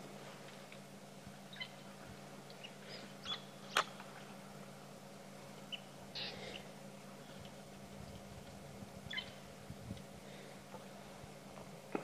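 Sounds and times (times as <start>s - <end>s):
low steady hum: 0.0s - 12.0s
faint bird chirps: 1.5s - 1.9s, 2.5s - 3.9s, 5.6s - 7.6s, 9.0s - 9.4s.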